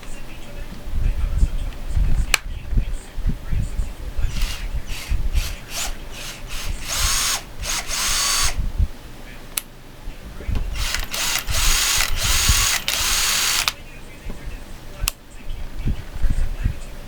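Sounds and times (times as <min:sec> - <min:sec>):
cordless drill spinning: 0:04.3 - 0:08.6, 0:10.8 - 0:13.8.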